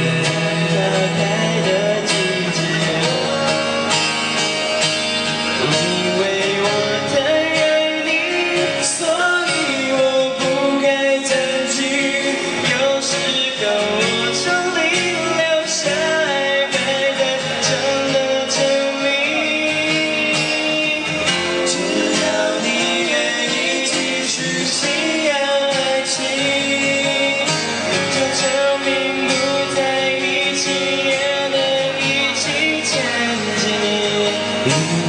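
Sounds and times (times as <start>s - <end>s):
guitar lead melody: 0.0s - 35.0s
pop band playing: 0.0s - 35.0s.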